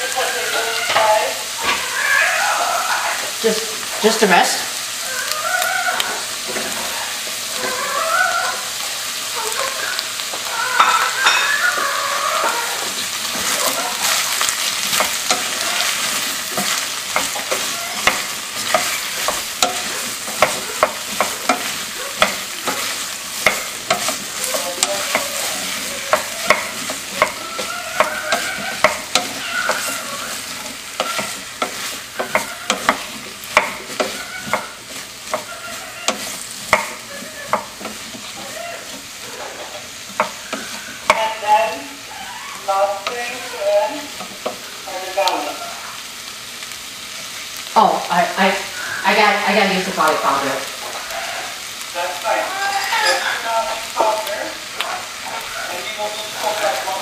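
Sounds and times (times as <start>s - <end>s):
vegetables sizzling in a pot: 0.0s - 57.0s
wooden spoon knocking a pot: 12.4s - 41.5s, 44.1s - 44.7s.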